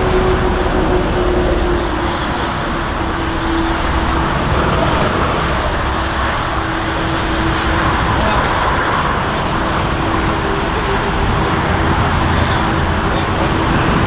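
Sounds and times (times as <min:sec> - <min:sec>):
jet engine rushing: 0:00.0 - 0:14.0.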